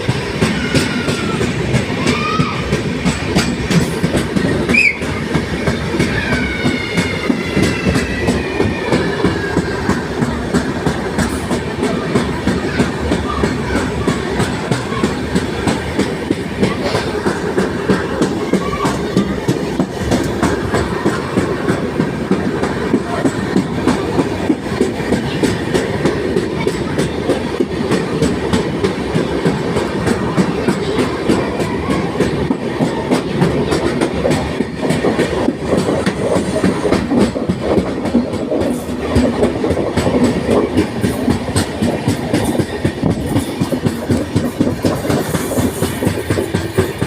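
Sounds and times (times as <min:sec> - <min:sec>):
train rumble: 0:00.0 - 0:47.0
train wheels clickety-clack: 0:00.0 - 0:47.0.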